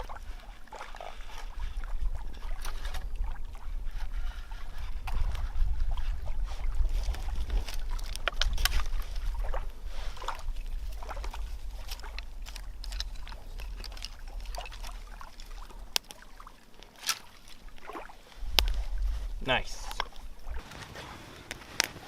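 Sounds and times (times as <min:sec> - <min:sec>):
wind rumble on microphone: 0:00.0 - 0:16.0, 0:17.5 - 0:20.7
fire crackling and popping: 0:10.4 - 0:20.8.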